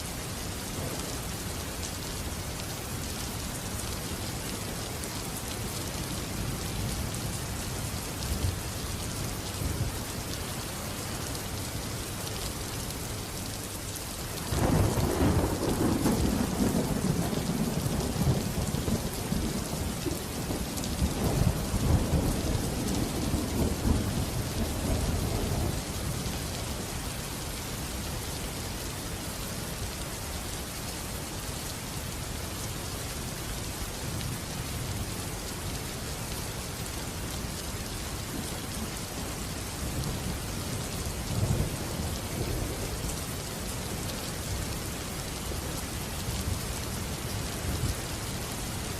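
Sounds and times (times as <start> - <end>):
steady rain falling: 0.0 - 48.9
rolling thunder: 14.5 - 25.9.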